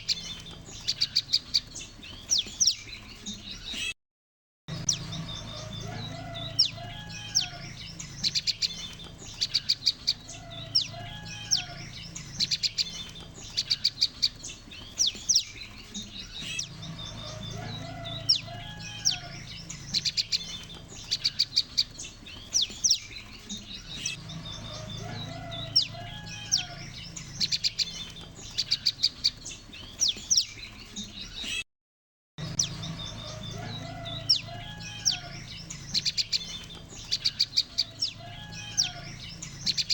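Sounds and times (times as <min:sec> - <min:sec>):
birds chirping sharply: 0:00.0 - 0:04.0, 0:04.7 - 0:31.6, 0:32.4 - 0:39.9
low hum: 0:16.6 - 0:20.9.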